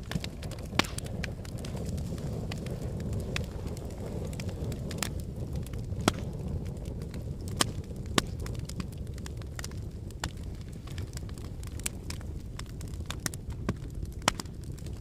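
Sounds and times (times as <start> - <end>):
low rumble of flame: 0.0 - 15.0
wood crackling and popping: 0.0 - 15.0.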